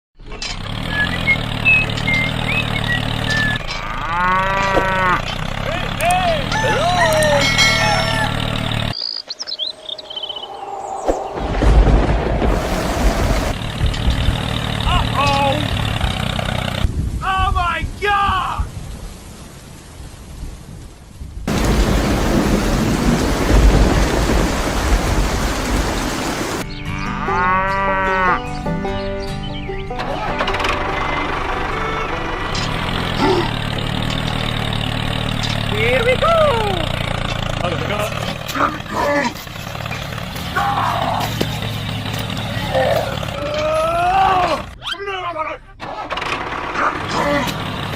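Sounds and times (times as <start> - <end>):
bird chirps: 0.3 - 3.6, 8.9 - 11.6
cow mooing: 3.7 - 5.4, 26.9 - 28.5
thunder: 11.0 - 13.9, 21.5 - 26.6
heavy rain: 11.2 - 17.3, 17.9 - 26.6.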